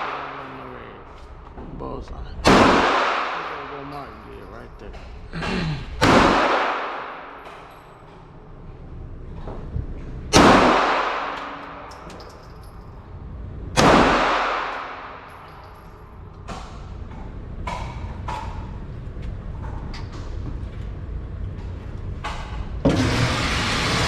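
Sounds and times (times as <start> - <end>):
echoing gunshots indoors: 0.0 - 0.8, 2.4 - 4.0, 6.0 - 9.3, 10.3 - 18.9.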